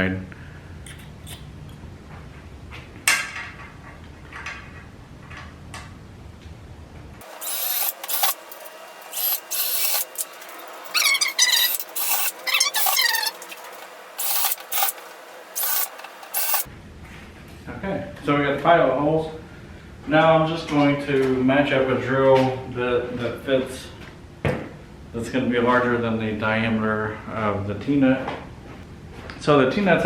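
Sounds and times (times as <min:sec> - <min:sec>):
power drill boring into wood: 0:07.2 - 0:13.6, 0:14.2 - 0:16.7.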